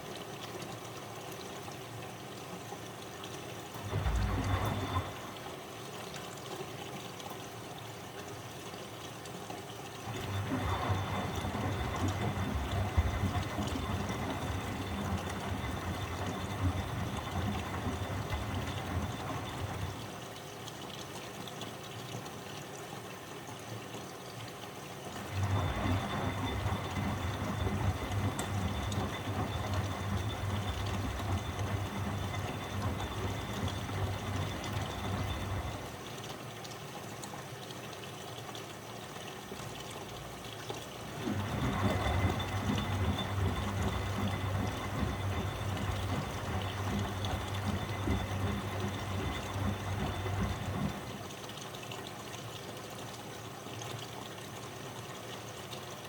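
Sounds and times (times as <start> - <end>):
water and laundry sloshing: 0.0 - 23.8, 24.4 - 56.0
washing machine motor turning drum: 3.7 - 5.6, 10.0 - 20.2, 25.2 - 36.2, 39.7 - 51.5.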